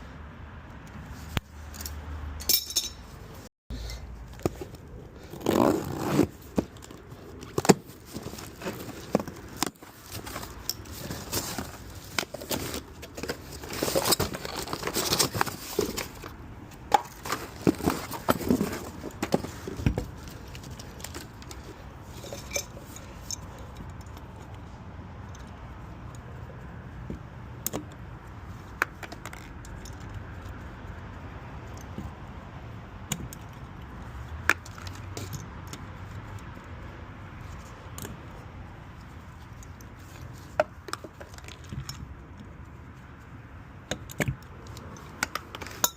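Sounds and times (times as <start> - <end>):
metal tools clinking: 1.7 - 3.2, 16.9 - 24.2, 44.9 - 45.9.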